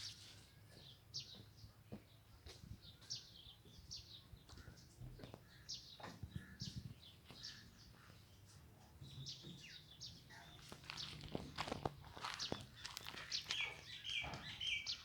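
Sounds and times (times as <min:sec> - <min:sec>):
high bird chirps: 0:12.2 - 0:15.0.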